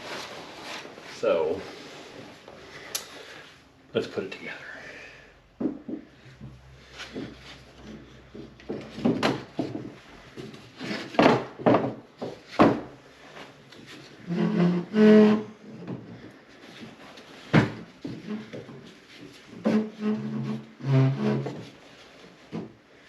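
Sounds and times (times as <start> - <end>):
wood knocking on wood: 5.6 - 13.0.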